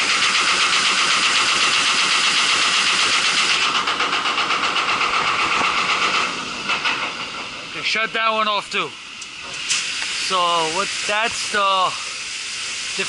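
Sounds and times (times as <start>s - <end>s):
cooling tower fan grinding rattle: 0.0s - 13.0s.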